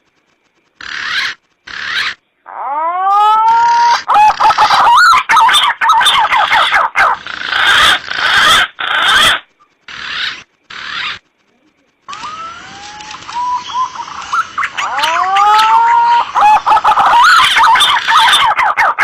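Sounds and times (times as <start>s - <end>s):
warbling whistles: 0.0s - 19.0s
pigeon calls rising whistles: 12.1s - 19.0s.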